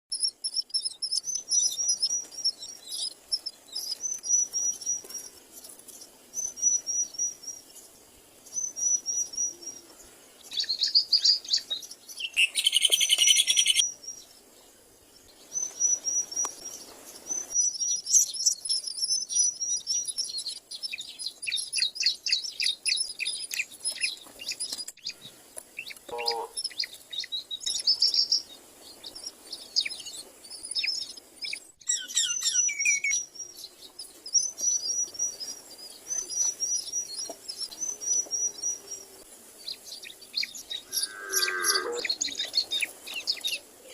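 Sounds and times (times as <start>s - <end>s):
myna birds chirping: 0.1s - 43.9s
harsh bird calling: 26.1s - 26.6s, 40.8s - 42.6s.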